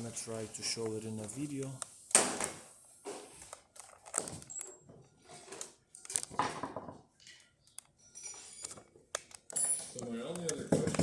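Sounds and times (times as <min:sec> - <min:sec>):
handling rustles and knocks: 0:08.2 - 0:11.0.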